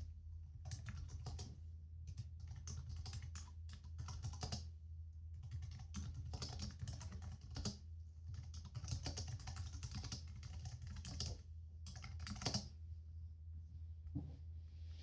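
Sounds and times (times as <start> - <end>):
steady low hum: 0.0 - 15.0
typing on computer keyboard: 0.5 - 1.5, 2.1 - 4.7, 5.4 - 12.7.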